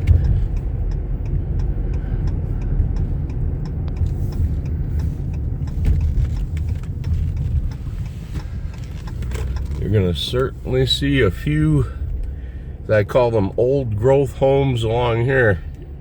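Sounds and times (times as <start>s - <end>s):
light quick ticking: 0.0s - 12.4s
engine and road rumble: 0.0s - 16.0s.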